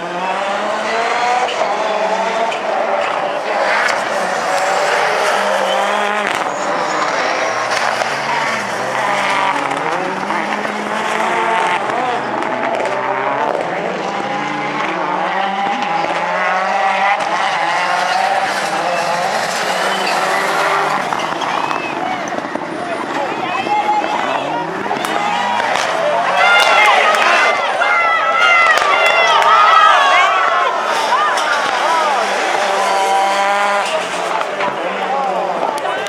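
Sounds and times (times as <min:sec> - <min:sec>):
race car engines revving: 0:00.0 - 0:36.0.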